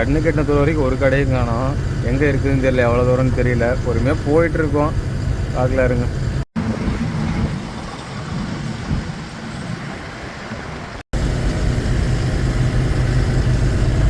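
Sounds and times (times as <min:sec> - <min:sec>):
lorry diesel engine running: 0:00.0 - 0:07.6, 0:11.1 - 0:14.0
low road rumble: 0:00.0 - 0:14.0.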